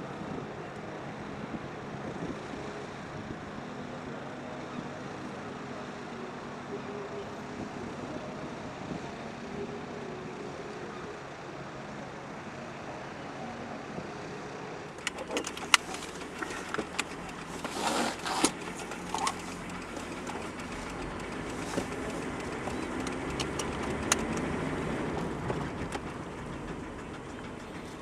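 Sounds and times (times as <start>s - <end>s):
car engine hum: 0.0s - 28.0s
road noise: 0.0s - 28.0s
sharp clicks and knocks: 15.0s - 24.6s.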